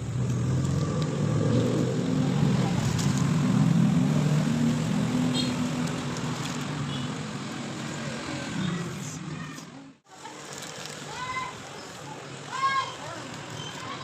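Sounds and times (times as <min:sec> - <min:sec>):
motor vehicle engine hum: 0:00.0 - 0:08.0.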